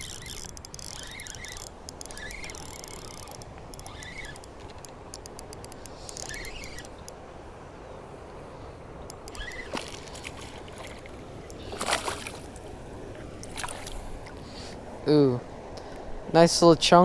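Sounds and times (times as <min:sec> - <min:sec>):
fishing reel clicking: 0:00.0 - 0:07.2, 0:09.1 - 0:09.7
outdoor background noise: 0:00.0 - 0:17.0.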